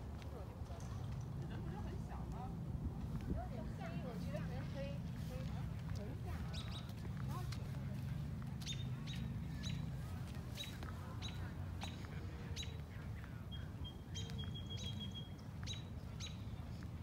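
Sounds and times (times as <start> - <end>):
small songbird chirping: 8.6 - 9.9, 13.5 - 16.5.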